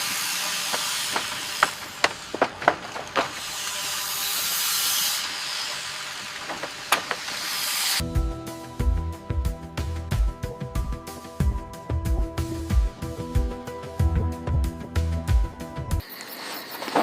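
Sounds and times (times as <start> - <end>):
steady hiss: 0.0 - 8.0
sharp knocks and clicks: 0.7 - 3.4.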